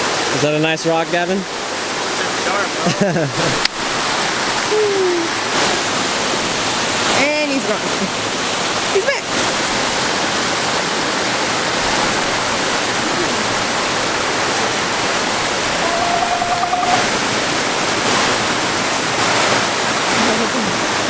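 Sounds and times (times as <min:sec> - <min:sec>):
waterfall rushing: 0:00.0 - 0:21.0
faint wavering tone: 0:15.8 - 0:17.1.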